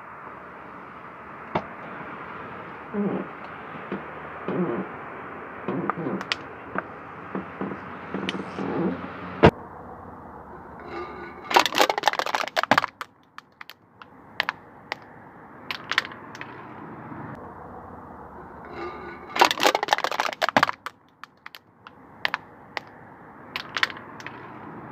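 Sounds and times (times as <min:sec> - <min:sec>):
low background noise: 0:00.0 - 0:24.9
sharp crack: 0:01.4 - 0:05.0, 0:05.6 - 0:09.6, 0:10.8 - 0:16.7, 0:18.7 - 0:24.7
rapid crackling and snapping: 0:05.6 - 0:09.0, 0:10.9 - 0:15.1, 0:15.7 - 0:16.6, 0:18.7 - 0:24.6
car tyre crushing crunchy objects: 0:10.8 - 0:15.1, 0:15.7 - 0:16.7, 0:18.7 - 0:24.6.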